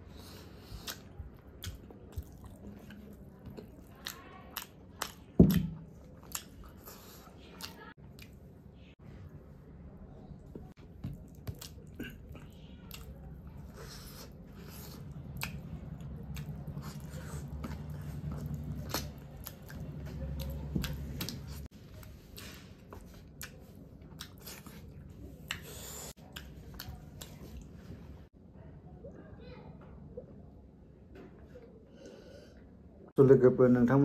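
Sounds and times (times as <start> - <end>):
man biting and chewing: 3.6 - 8.4, 11.1 - 21.6.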